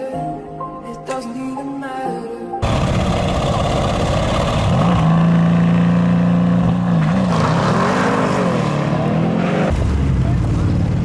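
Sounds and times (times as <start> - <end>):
car engine revving: 2.6 - 11.0.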